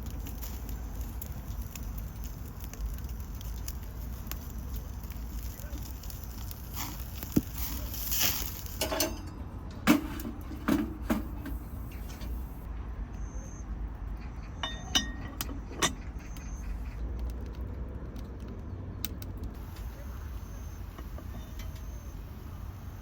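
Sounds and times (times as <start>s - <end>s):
cooking utensils clinking: 7.6s - 12.5s, 14.6s - 16.3s.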